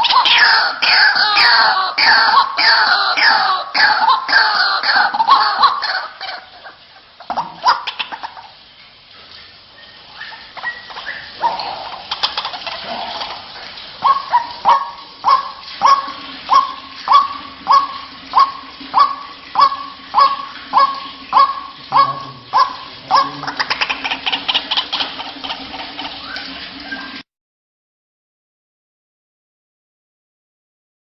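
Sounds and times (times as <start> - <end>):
bird calling sharp repeated notes: 14.0 - 25.2.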